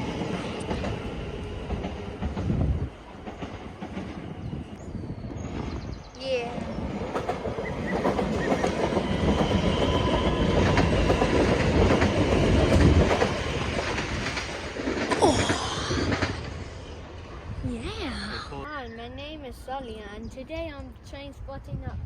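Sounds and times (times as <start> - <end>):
train rumble: 0.0 - 22.0
train wheels clicking over rail joints: 7.0 - 16.8.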